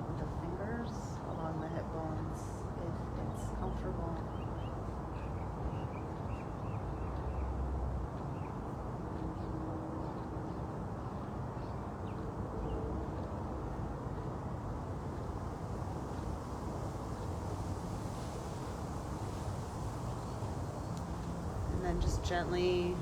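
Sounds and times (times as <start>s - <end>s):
small birds chirping: 0.2s - 23.0s
low background rumble: 20.0s - 23.0s.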